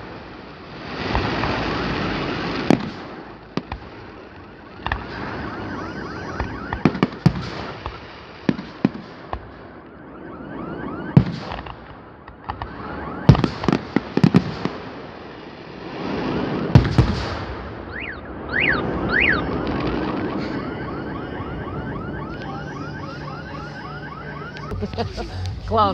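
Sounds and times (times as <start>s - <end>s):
fireworks crackling: 0.0s - 10.2s, 11.1s - 25.9s
firework whistles: 4.8s - 9.4s, 16.0s - 25.8s.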